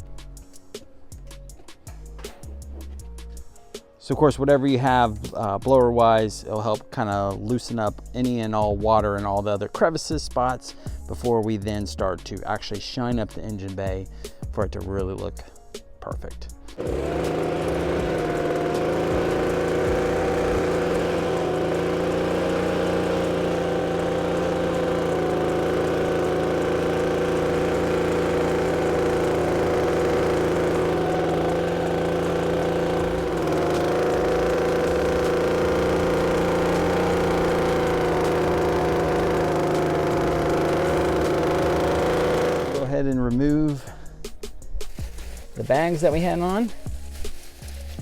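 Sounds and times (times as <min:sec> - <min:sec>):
air blower whirring: 0:16.7 - 0:42.9.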